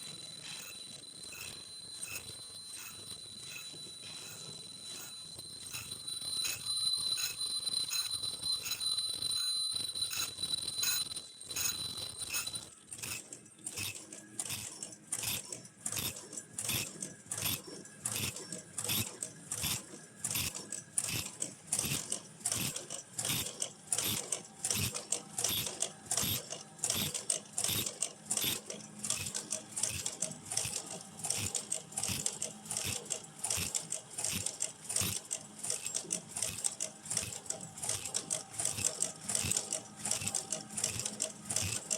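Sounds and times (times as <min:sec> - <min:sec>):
machine mechanism clacking: 0:00.0 - 0:09.2, 0:10.2 - 0:41.9
steady high whine: 0:00.0 - 0:12.7.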